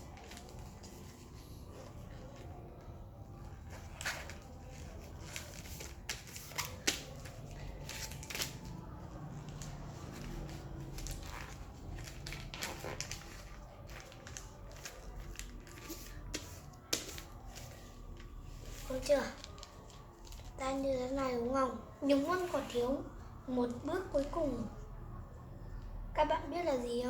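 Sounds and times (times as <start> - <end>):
paper crinkling and rustling: 0.0 - 20.9.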